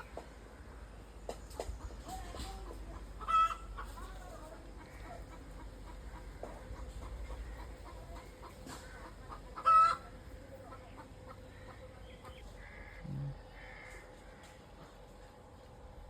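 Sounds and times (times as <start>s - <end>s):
chickens clucking: 1.2s - 15.4s
chicken squawk: 2.6s - 4.1s, 4.8s - 10.1s.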